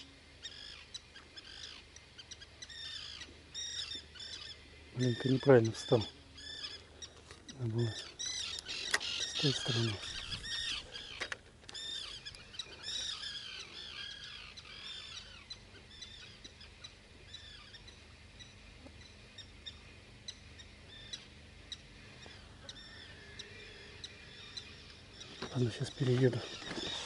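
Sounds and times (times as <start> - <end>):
songbird chirping: 0.0 - 27.0
sharp bird ticks: 6.7 - 9.6.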